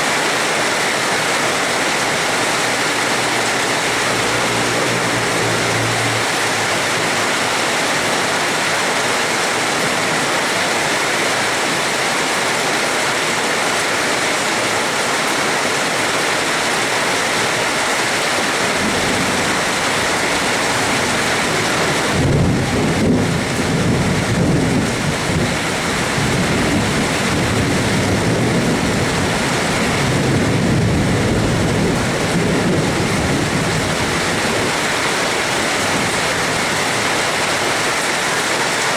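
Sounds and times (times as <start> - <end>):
heavy rain hissing: 0.0 - 38.9
rolling thunder rumble: 18.6 - 37.1.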